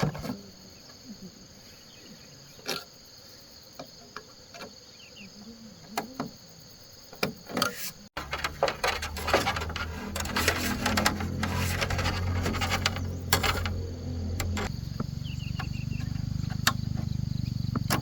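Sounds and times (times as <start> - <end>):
insects buzzing: 0.0 - 18.0
knocking and clatter: 8.2 - 14.7.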